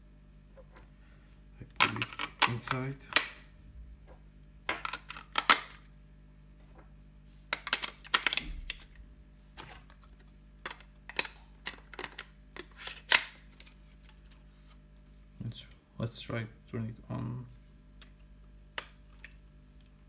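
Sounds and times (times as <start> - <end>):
plastic clicks and clacks: 1.7 - 3.4, 10.6 - 13.8.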